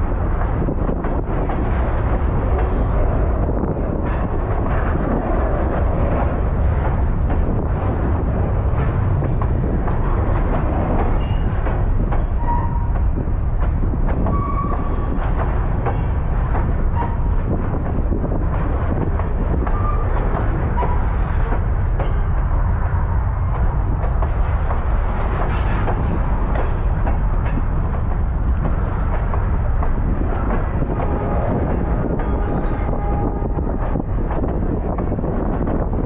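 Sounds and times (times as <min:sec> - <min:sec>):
train rumbling on rails: 0:00.0 - 0:36.0
short squeaks: 0:11.1 - 0:11.6.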